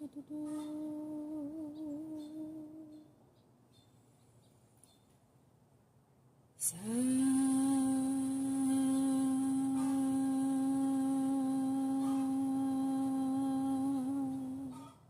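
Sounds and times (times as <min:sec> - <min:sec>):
person holding a vocal tone: 0:06.7 - 0:14.8.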